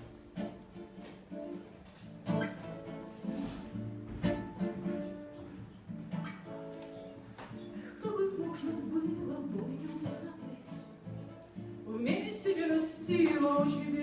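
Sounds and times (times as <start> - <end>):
acoustic guitar picked chords: 0.0 - 14.0.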